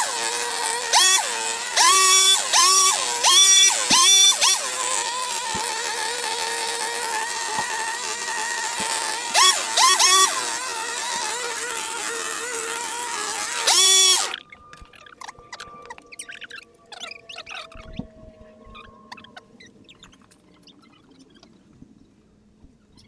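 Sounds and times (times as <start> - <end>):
two-stroke garden power tool: 0.0 - 14.4.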